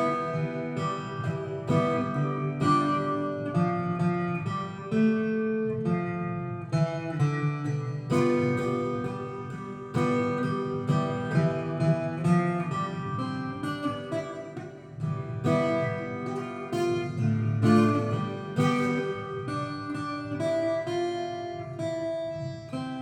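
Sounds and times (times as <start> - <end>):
acoustic guitar melody: 0.0 - 23.0.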